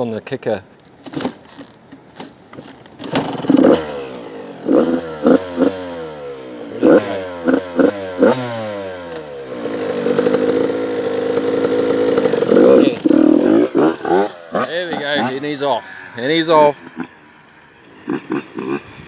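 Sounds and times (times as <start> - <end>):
dirt bike kick-started: 1.0 - 19.0
dirt bike engine revving: 3.0 - 19.0.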